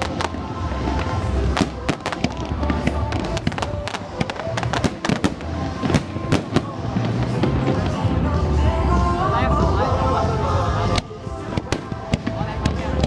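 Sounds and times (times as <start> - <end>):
fireworks bangs and pops: 0.0 - 8.2, 10.9 - 13.0
pop music over loudspeakers: 0.0 - 13.0.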